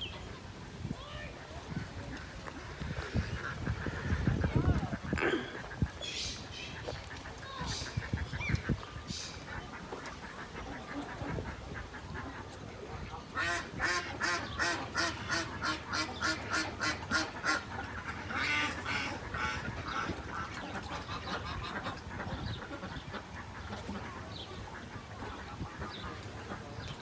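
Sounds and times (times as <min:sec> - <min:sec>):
duck quacking: 0:13.4 - 0:24.1.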